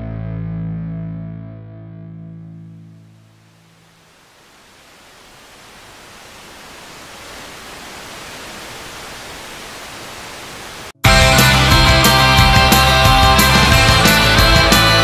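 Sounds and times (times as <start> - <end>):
steady hiss of noise: 3.1 - 11.0
loud rock music: 11.0 - 15.0.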